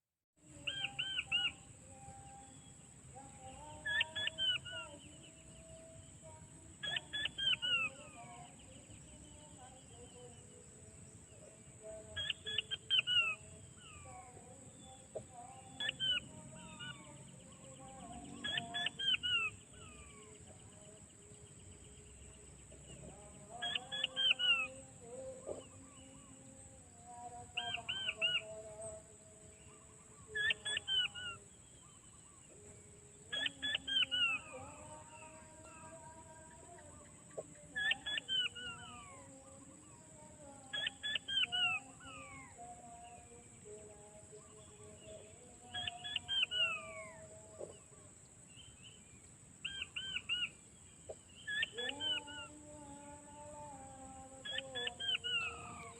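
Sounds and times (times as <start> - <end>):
quail piping calls: 0.6 - 1.6, 3.8 - 4.9, 6.8 - 8.2, 15.1 - 17.1, 18.4 - 20.3, 23.6 - 24.8, 27.6 - 28.5, 30.2 - 32.1, 33.3 - 34.7, 36.8 - 39.3, 40.7 - 42.4, 45.7 - 47.8, 49.6 - 52.5, 54.4 - 55.9.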